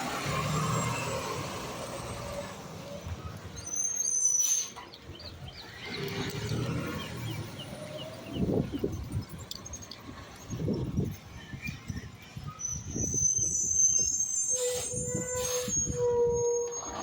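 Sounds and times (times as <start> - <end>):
high-pitched squeal: 11.7 - 17.0.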